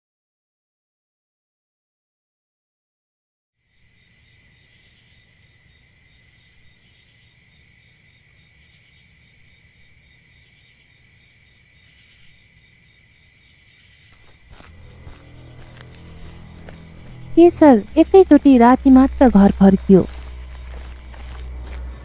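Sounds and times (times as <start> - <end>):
crickets chirring: 3.6 - 22.0
low background rumble: 14.7 - 22.0.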